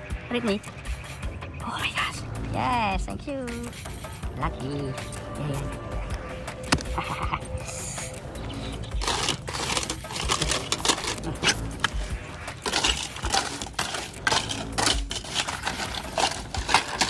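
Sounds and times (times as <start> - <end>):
small hard objects clicking: 6.6 - 17.0.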